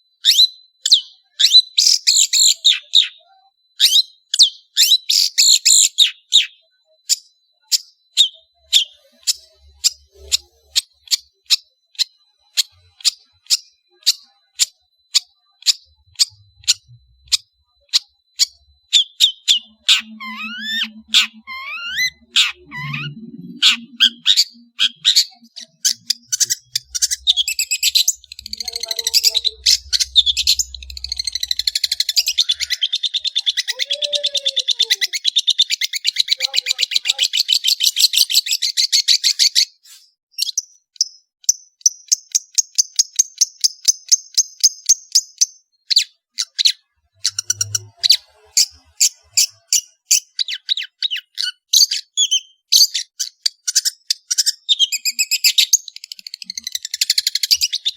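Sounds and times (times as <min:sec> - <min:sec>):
high buzzy bird trill: 0:00.0 - 0:39.8, 0:46.4 - 0:52.6
bird chattering trill: 0:00.2 - 0:57.9.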